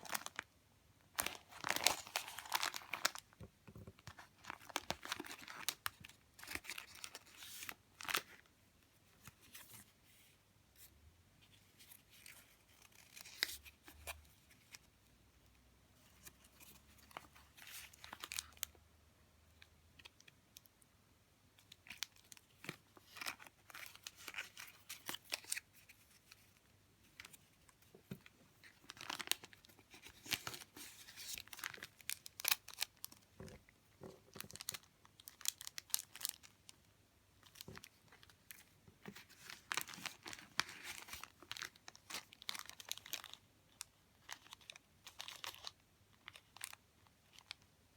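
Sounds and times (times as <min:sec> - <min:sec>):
paper and plastic rustling: 0:01.2 - 0:08.4, 0:21.8 - 0:36.5, 0:37.4 - 0:47.5.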